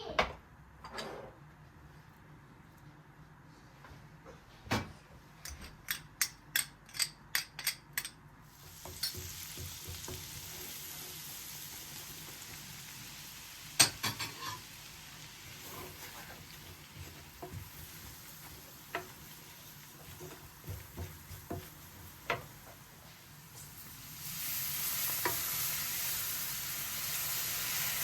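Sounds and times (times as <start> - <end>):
kitchen clicks and taps: 5.4 - 8.2, 8.8 - 10.3
food sizzling in a pan: 8.5 - 28.0.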